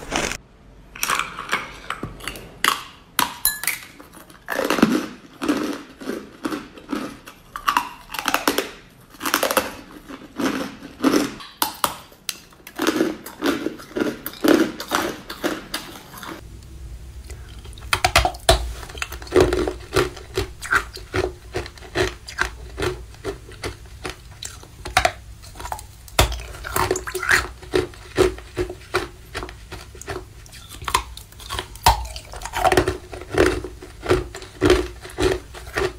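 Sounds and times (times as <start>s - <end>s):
ice crunching while chewing: 0.0s - 0.4s, 4.0s - 16.4s, 17.3s - 35.9s
low hum: 16.4s - 26.0s.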